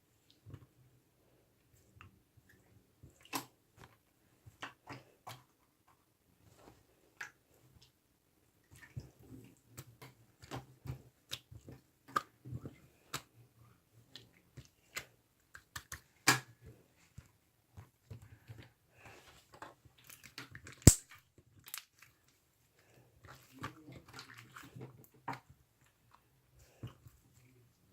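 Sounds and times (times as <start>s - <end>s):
sticky clicks and wet pops: 20.7s - 21.9s
sharp loud snap: 20.9s - 21.1s.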